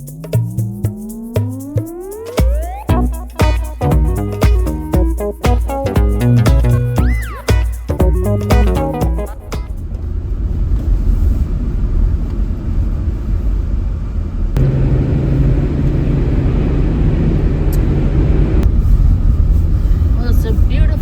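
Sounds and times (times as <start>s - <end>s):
steady low hum: 0.0s - 21.0s
truck engine and road rumble: 9.8s - 21.0s.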